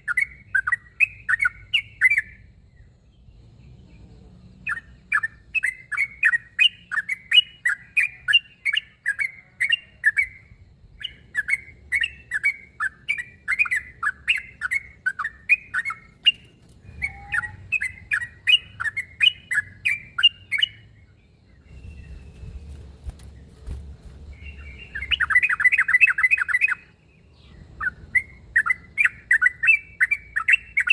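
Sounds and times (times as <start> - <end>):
bird chirping: 0.0 - 30.9.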